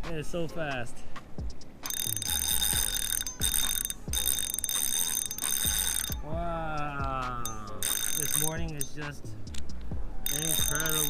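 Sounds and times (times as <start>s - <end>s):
background music with low beat: 0.0s - 11.0s
high-pitched alarm-like ringing: 1.8s - 6.4s, 7.4s - 9.1s, 10.2s - 11.0s.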